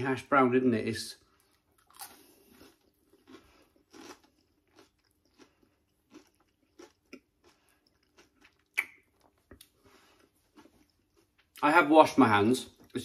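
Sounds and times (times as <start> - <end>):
crunchy chewing: 1.3 - 11.6.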